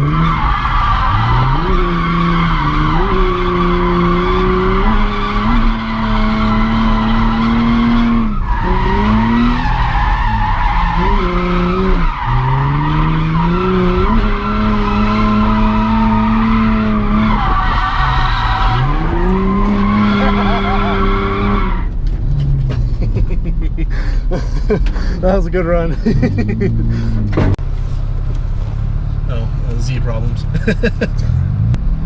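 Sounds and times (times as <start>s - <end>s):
tyres squealing: 0.0s - 22.6s
car engine at high revs: 0.0s - 32.0s.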